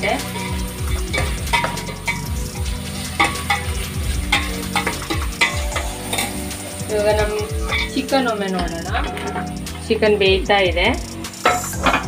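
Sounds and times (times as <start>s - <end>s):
onions sizzling in hot oil: 0.0s - 12.0s
metal spoon scraping a pot: 0.2s - 6.4s, 7.2s - 8.2s, 8.8s - 9.8s.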